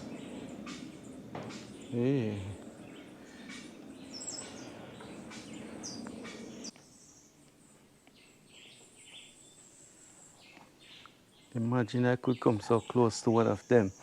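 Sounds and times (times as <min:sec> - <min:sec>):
low rushing noise: 0:00.0 - 0:06.7
small birds chirping: 0:00.0 - 0:14.0.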